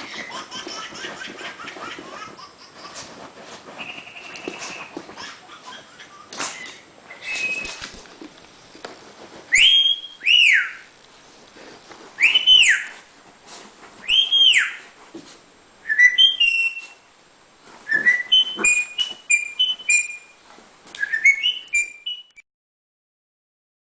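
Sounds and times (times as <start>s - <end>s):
bird whistling: 3.8s - 4.9s, 6.5s - 7.9s, 9.5s - 10.9s, 12.2s - 13.0s, 14.0s - 14.8s, 15.8s - 17.0s, 17.9s - 20.4s, 21.0s - 22.4s
bird chirping: 3.8s - 5.3s, 6.4s - 7.9s, 9.6s - 10.9s, 12.2s - 13.0s, 14.0s - 14.8s, 15.9s - 17.0s, 17.9s - 20.4s, 21.0s - 22.4s.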